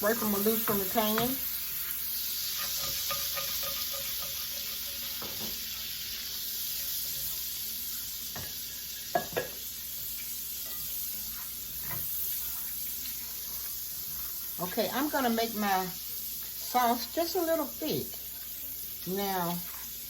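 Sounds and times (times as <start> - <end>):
butter sizzling in a frying pan: 0.0 - 20.0
utensil scraping a pan: 0.1 - 6.4, 19.5 - 20.0.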